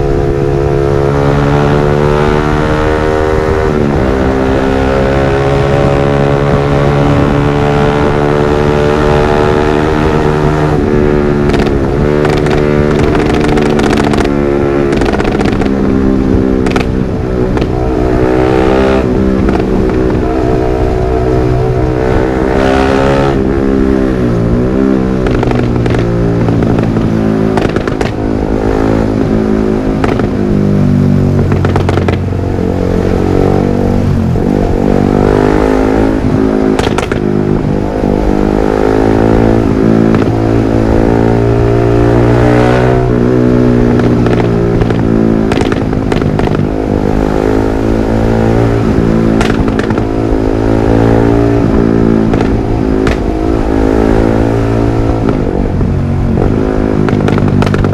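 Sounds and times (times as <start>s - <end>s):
motorcycle engine revving: 0.0s - 57.9s
exhaust pops and crackles: 10.6s - 16.0s, 16.6s - 17.8s, 19.4s - 20.3s, 25.2s - 28.2s, 29.1s - 30.4s, 31.4s - 32.3s, 36.0s - 37.8s, 39.4s - 40.8s, 43.8s - 47.0s, 48.5s - 57.9s.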